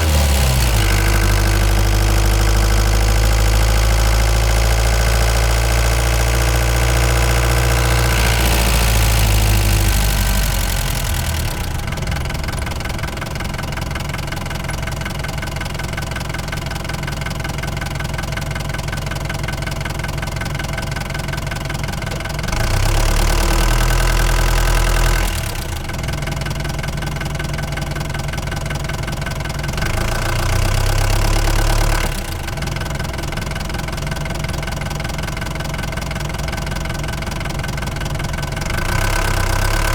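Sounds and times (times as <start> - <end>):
van engine running: 0.0 - 39.9.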